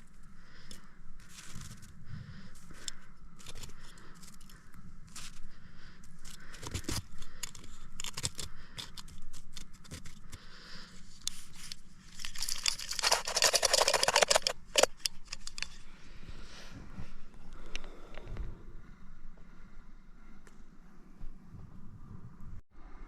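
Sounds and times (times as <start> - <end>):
clicks and crinkling of gear: 0.0 - 15.9
rapid rasping: 11.4 - 15.7.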